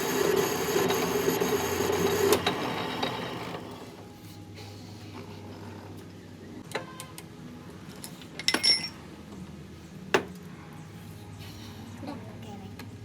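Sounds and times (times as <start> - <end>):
metal parts clinking: 8.0 - 9.0.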